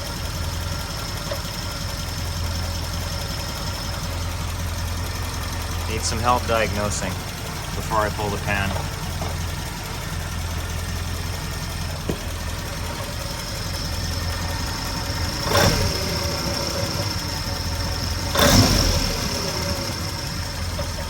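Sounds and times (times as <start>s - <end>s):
car engine idling with rattle: 0.0s - 21.0s
sharp engine knocks: 7.6s - 13.2s.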